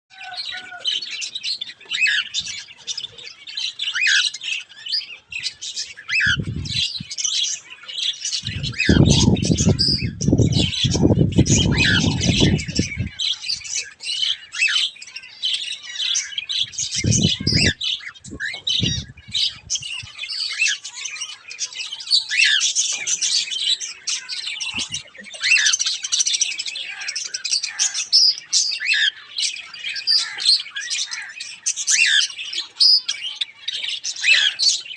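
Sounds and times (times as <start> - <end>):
aviary birds chirping and squawking: 0.1 - 34.9
low rumbling noise: 6.4 - 6.8, 8.4 - 13.2, 16.7 - 19.8.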